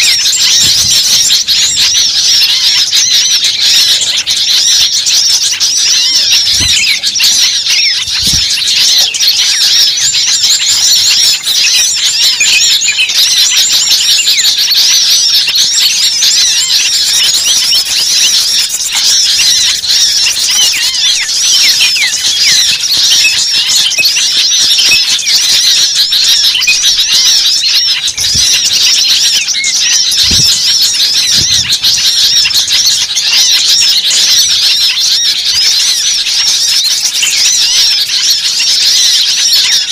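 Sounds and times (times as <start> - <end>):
birds chirping and squeaking: 0.0 - 39.9.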